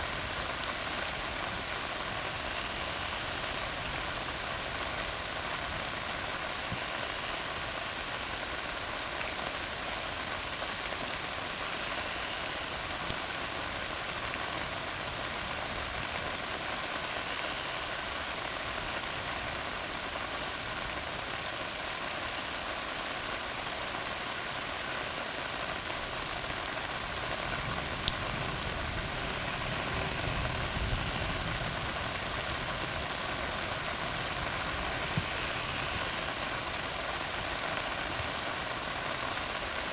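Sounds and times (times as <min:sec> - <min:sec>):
rain falling on a road: 0:00.0 - 0:39.9.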